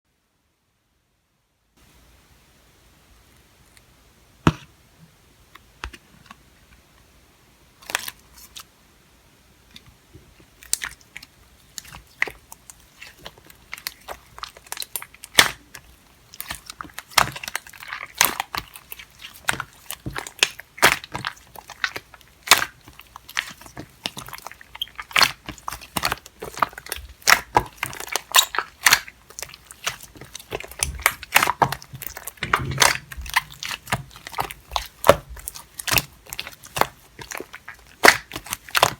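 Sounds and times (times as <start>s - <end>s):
slime kneaded by hand: 10.4s - 38.9s.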